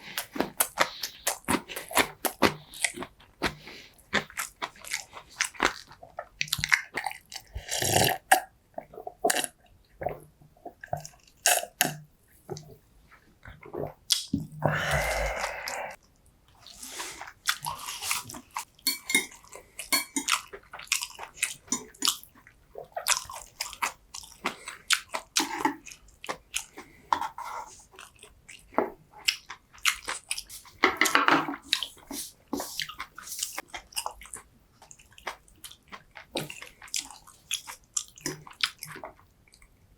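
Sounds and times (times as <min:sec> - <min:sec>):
wet chewing: 0:00.0 - 0:08.4.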